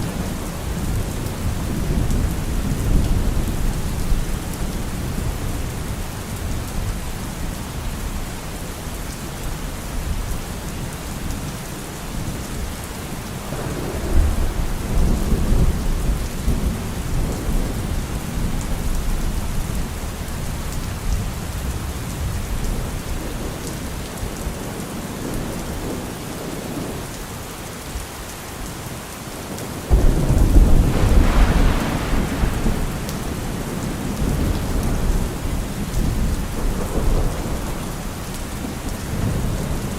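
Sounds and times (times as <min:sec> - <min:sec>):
heavy rain: 0:00.0 - 0:39.9
rolling thunder: 0:13.4 - 0:19.8, 0:29.9 - 0:39.9
thunderclap: 0:13.5 - 0:18.0, 0:29.9 - 0:39.7.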